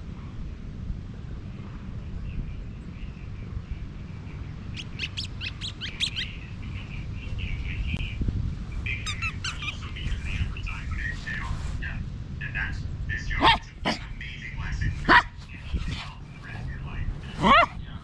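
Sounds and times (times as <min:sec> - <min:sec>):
wind rumble on microphone: 0:00.0 - 0:18.0
small birds chirping: 0:02.1 - 0:11.6.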